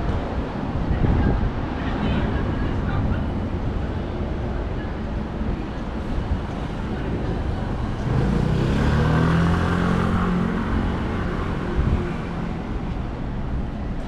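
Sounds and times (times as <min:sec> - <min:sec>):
traffic rumble: 0:00.0 - 0:14.0
vehicle engine passing: 0:07.8 - 0:12.8.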